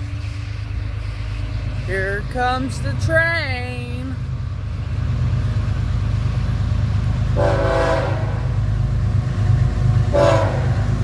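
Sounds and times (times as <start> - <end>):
locomotive rumbling: 0.0 - 11.0
locomotive air horn: 7.4 - 8.6, 10.1 - 11.0.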